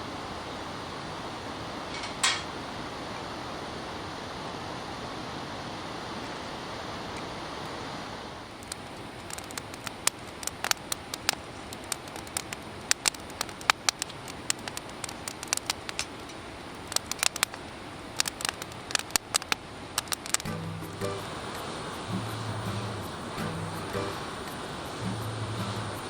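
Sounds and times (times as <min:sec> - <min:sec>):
fire hiss: 0:00.0 - 0:26.0
campfire crackling and popping: 0:08.5 - 0:26.0.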